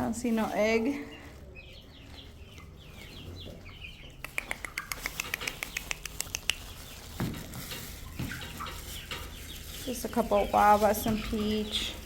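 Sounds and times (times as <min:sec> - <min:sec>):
chickens peeping: 0:00.0 - 0:12.0.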